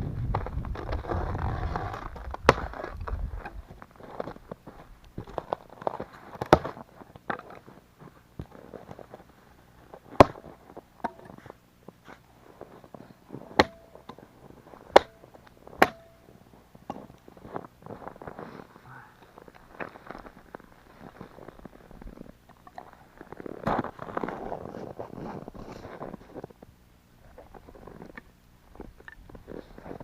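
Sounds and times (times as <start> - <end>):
firewood cracks and knocks: 5.1 - 7.6, 10.1 - 11.3, 13.6 - 14.2, 14.9 - 16.2.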